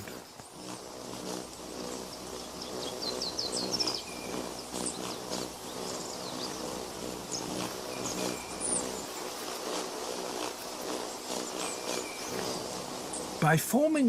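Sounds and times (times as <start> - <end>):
steady low hum: 0.0 - 14.0
bird chirps: 2.1 - 9.2.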